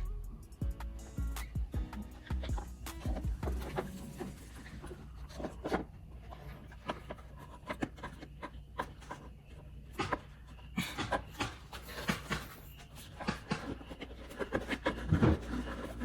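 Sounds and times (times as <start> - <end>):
low hum: 0.0 - 6.6
parts clicking and tapping: 6.7 - 16.0.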